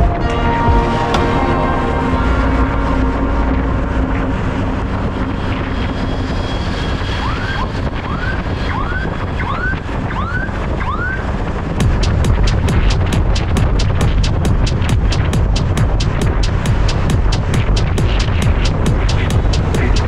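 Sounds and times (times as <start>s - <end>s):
motorbike road and wind noise: 0.0s - 13.7s.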